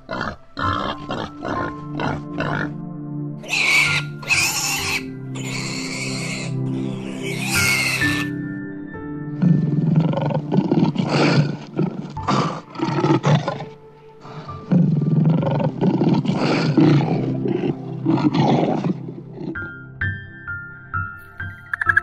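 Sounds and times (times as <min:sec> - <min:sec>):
lion roaring: 0:00.0 - 0:02.8, 0:09.4 - 0:19.7
soft background music: 0:00.0 - 0:22.0.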